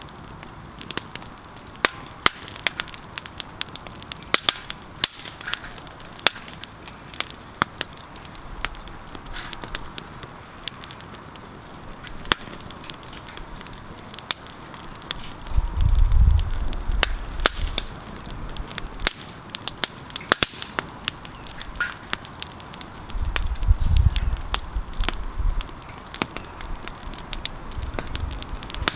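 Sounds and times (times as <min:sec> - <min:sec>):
campfire crackling and popping: 0:00.0 - 0:28.9
low rumble: 0:15.3 - 0:19.0.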